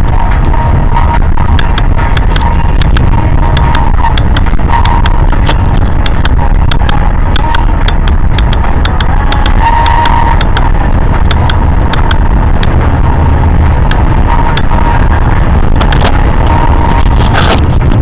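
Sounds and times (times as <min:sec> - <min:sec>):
faint steady whine: 0:00.0 - 0:18.0
vehicle rumble: 0:00.0 - 0:18.0
sharp clicks: 0:01.4 - 0:12.8, 0:13.8 - 0:14.9, 0:15.7 - 0:16.6.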